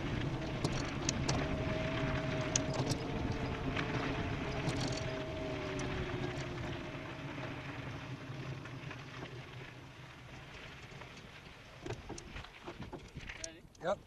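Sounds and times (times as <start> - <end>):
faint hum sliding down in pitch: 0.0 - 10.4
bicycle tyre noise: 0.0 - 13.4.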